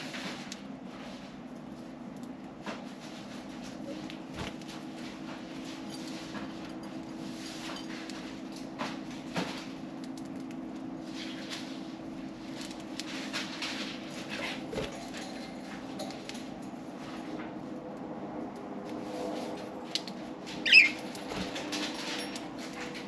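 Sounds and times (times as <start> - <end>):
birds pecking at seed: 18.4 - 23.0
budgerigars chirping: 20.6 - 21.0.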